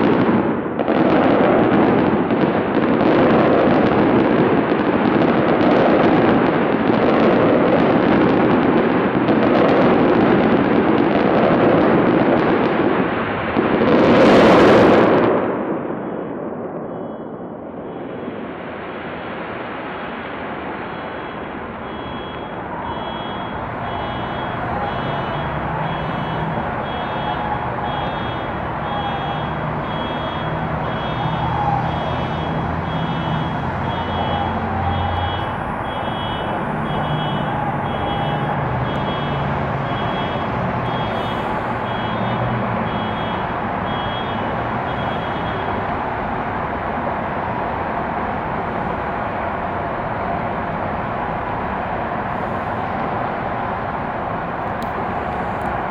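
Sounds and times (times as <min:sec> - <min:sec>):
city noise: 0:00.0 - 0:55.9
reversing alarm beeping: 0:16.8 - 0:18.4, 0:20.9 - 0:45.8.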